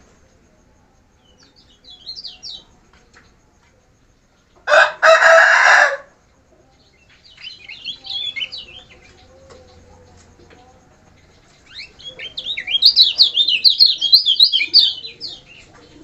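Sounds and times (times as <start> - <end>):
songbird chirping and warbling: 0.2 - 16.0
loud harsh bird cry: 7.2 - 9.8, 11.6 - 16.0.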